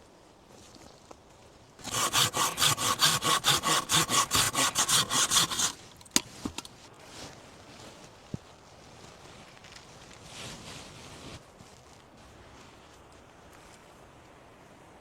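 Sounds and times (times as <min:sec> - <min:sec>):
hand saw cutting wood: 0:01.8 - 0:05.9.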